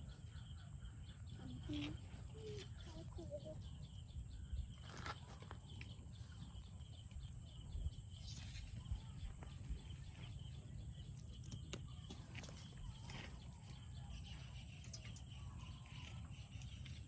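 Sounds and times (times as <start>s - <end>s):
wind rumble on microphone: 1.3s - 5.4s, 6.4s - 11.1s.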